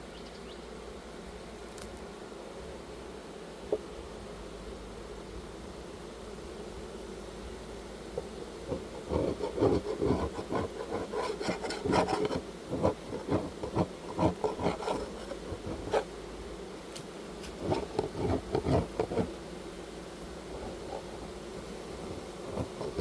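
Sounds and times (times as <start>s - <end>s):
wax scraping rasps: 8.6s - 16.1s, 17.4s - 19.3s, 22.1s - 23.0s.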